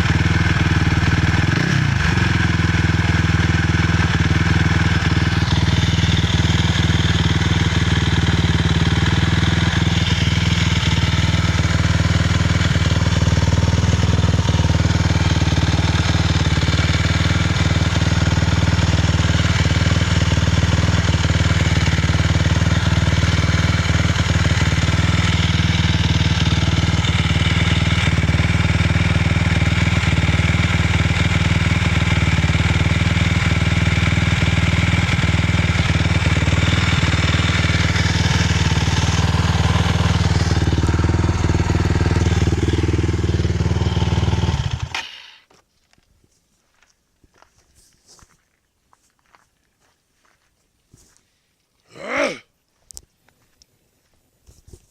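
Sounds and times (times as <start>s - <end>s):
quad bike engine running: 0.0s - 45.5s.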